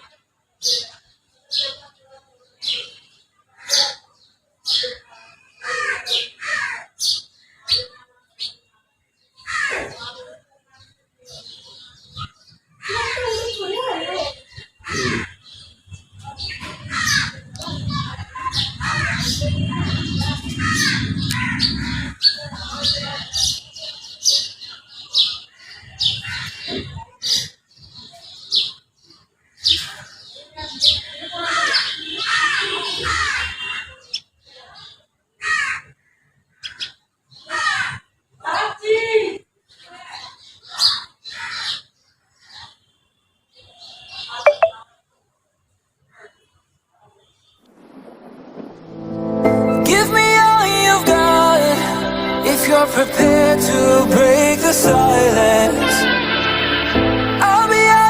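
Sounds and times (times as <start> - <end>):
bird chirping: 14.4 - 26.9, 40.5 - 44.9.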